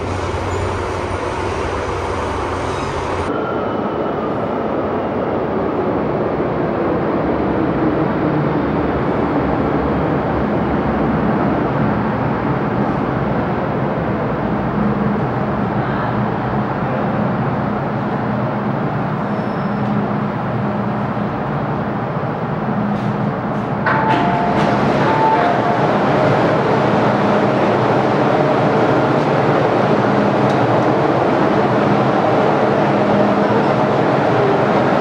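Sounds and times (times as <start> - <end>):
train rumbling: 0.0 - 35.0
train whine falling in pitch: 23.8 - 35.0.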